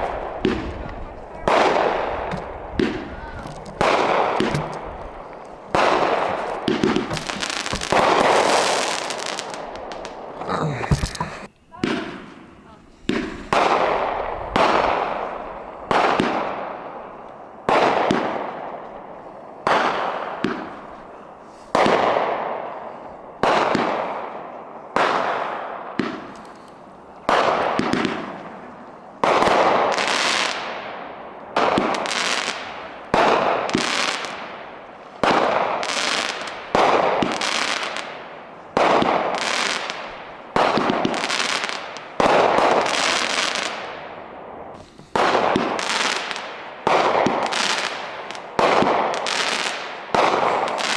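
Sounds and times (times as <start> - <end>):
fireworks banging: 0.0 - 50.9.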